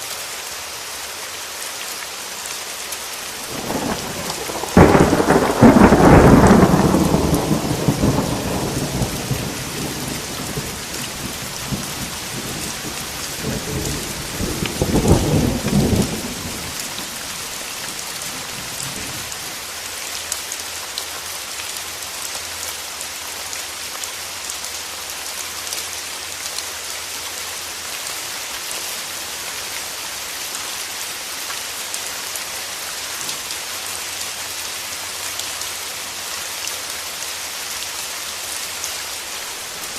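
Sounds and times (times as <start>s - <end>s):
rain pattering: 0.0s - 39.9s
thunder rumbling: 3.4s - 19.4s.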